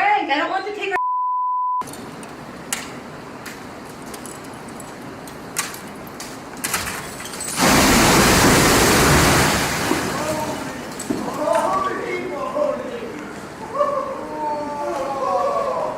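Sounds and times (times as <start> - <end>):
censor bleep: 1.0 - 1.8
loud rush of water: 7.5 - 11.3.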